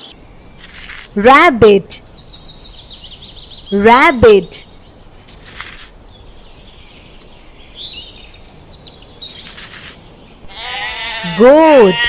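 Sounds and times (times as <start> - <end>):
rustling: 0.6 - 1.2, 2.0 - 3.8, 4.6 - 10.7.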